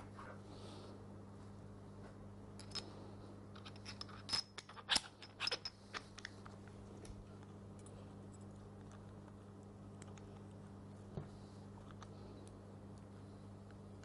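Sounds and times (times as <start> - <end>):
small metal parts clicking: 3.5 - 6.3.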